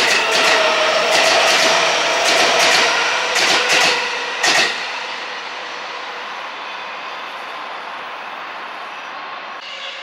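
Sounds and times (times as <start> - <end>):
train wheels clacking over joints: 0.0 - 4.9
train hum and whine: 0.0 - 10.0.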